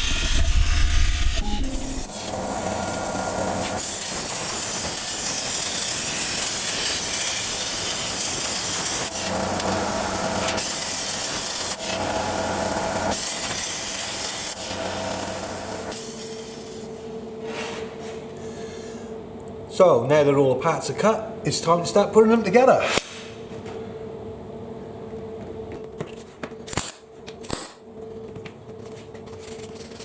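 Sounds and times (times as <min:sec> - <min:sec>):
plasma cutter hissing: 0:00.0 - 0:17.0.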